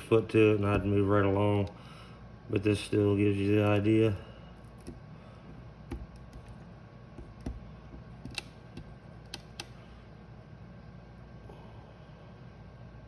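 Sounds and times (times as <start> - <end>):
steady low hum: 0.0 - 13.0
soldering iron clicking on plastic: 7.2 - 9.8.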